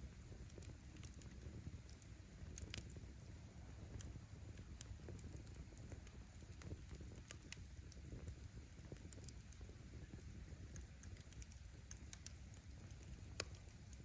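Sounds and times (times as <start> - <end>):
bonfire flames rumbling: 0.0 - 14.0
wood crackling and popping: 0.0 - 14.0.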